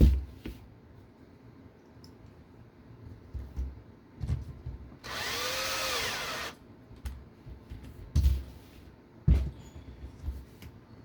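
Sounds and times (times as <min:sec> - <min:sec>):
power screwdriver driving a screw: 0:05.0 - 0:06.6.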